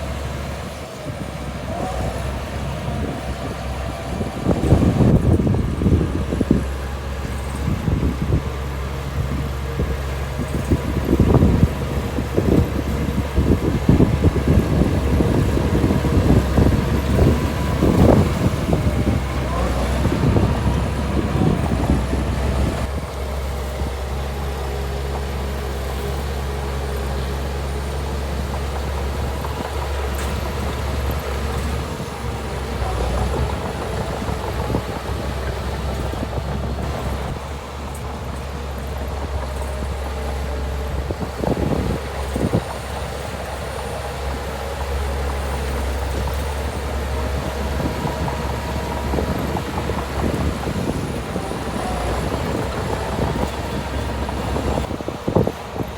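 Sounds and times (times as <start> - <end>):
heavy diesel machinery running: 0.0 - 55.9.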